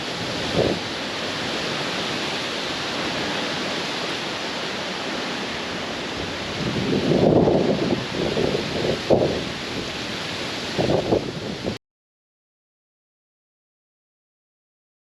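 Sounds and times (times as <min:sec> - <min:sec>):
strong wind rushing: 0:00.0 - 0:04.2, 0:04.8 - 0:11.8.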